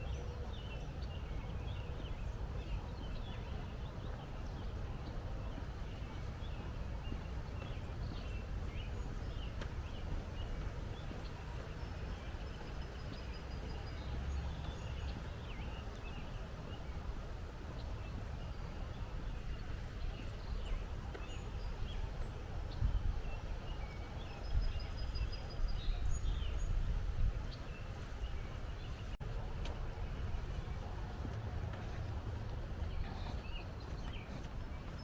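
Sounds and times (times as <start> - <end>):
small birds chirping: 0.0 - 35.0
steady low rumble: 0.0 - 35.0.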